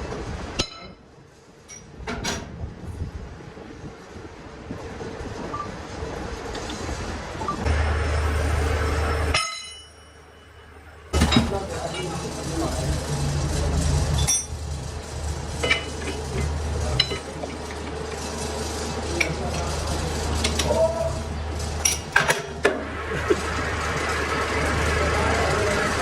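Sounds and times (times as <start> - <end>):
low machine hum: 0.0 - 26.0
steel tools clinking: 14.1 - 14.8, 21.8 - 22.6.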